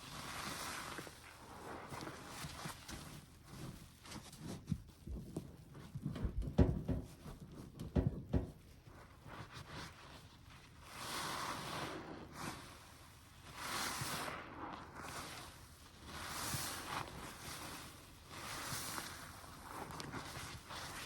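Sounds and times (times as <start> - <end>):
wet sponge squelching: 0.0 - 7.0, 7.6 - 21.0.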